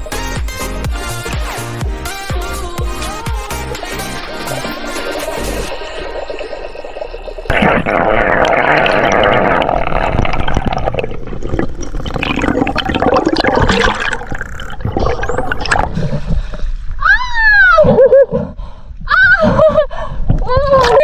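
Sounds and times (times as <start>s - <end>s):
water rushing and bubbling: 3.4s - 16.6s.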